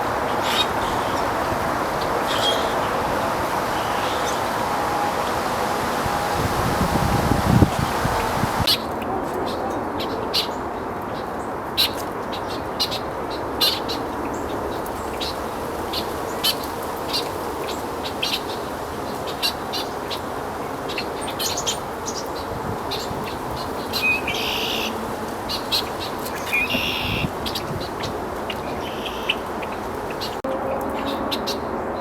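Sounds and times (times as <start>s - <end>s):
steady background noise: 0.0s - 32.0s
birds chirping and calling: 0.3s - 4.6s, 21.4s - 30.4s.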